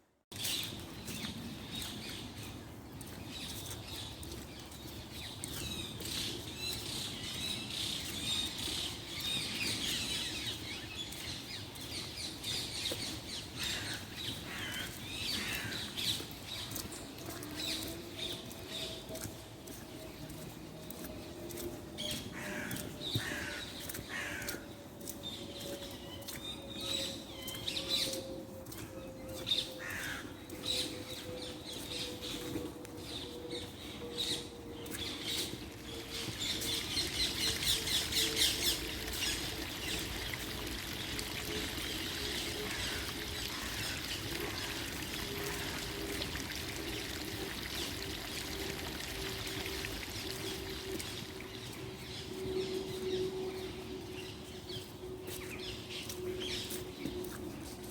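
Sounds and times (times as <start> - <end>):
steady hiss like running water: 36.2 - 51.7.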